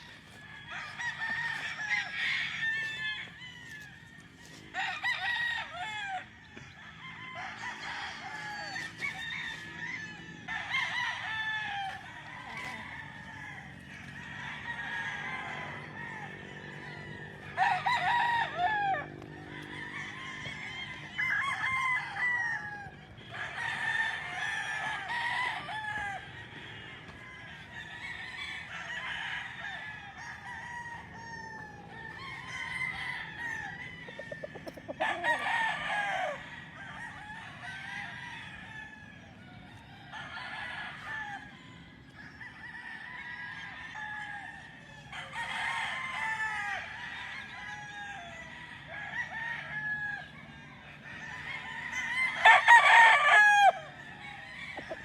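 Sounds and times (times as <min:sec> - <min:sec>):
roosters crowing: 0:00.0 - 0:55.0
hens clucking: 0:07.4 - 0:36.4.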